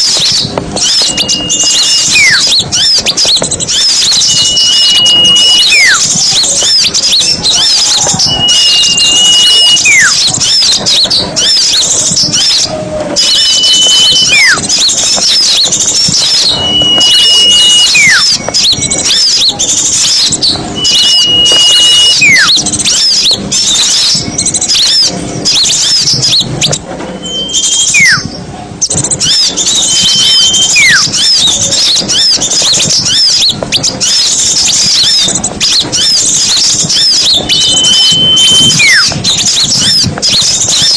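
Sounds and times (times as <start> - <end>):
songbirds chattering: 0.0 - 40.9
loud downward sliding whistle: 0.8 - 3.0, 3.8 - 6.0, 7.4 - 10.2, 12.3 - 14.6, 15.4 - 19.4, 20.1 - 24.3, 27.2 - 28.3, 36.8 - 39.5.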